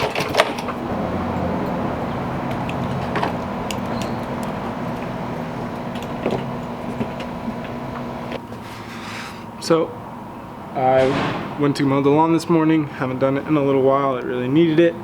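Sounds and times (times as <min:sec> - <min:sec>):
small engine running: 0:00.0 - 0:08.4.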